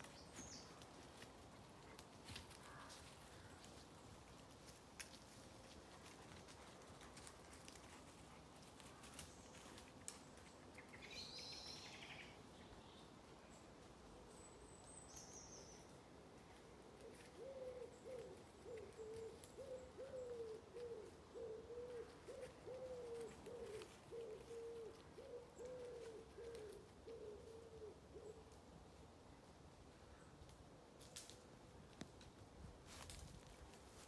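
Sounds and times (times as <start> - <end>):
bird hooting: 17.0 - 28.4.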